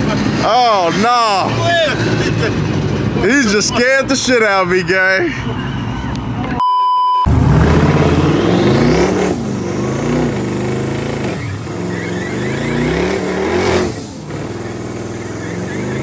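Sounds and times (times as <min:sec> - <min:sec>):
censor bleep: 0:06.6 - 0:07.3
car accelerating hard: 0:07.3 - 0:16.0.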